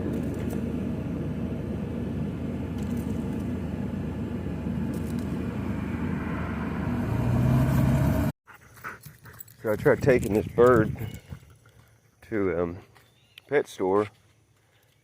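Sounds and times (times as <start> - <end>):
low hum: 0.0 - 8.3
car engine rumble: 0.0 - 8.4.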